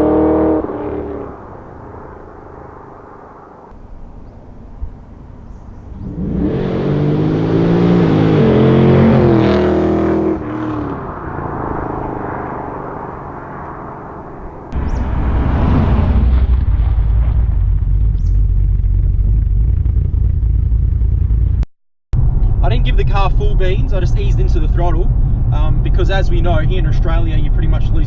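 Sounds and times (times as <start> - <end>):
car engine accelerating past: 0.0 - 3.6, 5.9 - 19.9
loud low rumble: 14.4 - 28.0.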